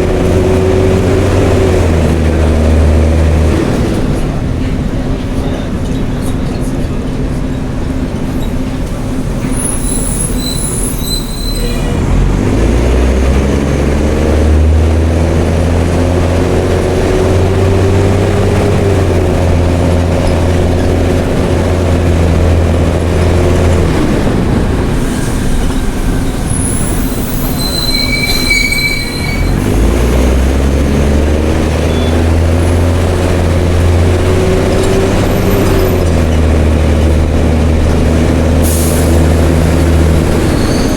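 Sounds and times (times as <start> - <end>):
diesel bus engine revving: 0.0 - 11.2, 11.8 - 40.9
brake squeals: 8.3 - 12.7, 19.9 - 21.2, 24.9 - 30.5, 31.5 - 33.6, 38.6 - 40.9.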